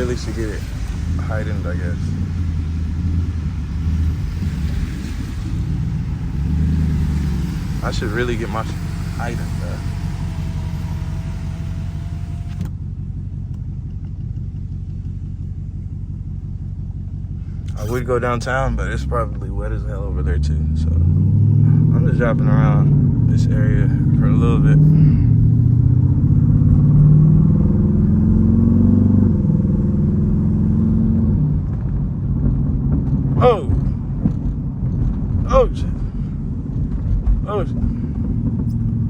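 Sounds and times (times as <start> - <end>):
wet road noise hiss: 0.0 - 12.6
engine rumbling: 0.0 - 39.0.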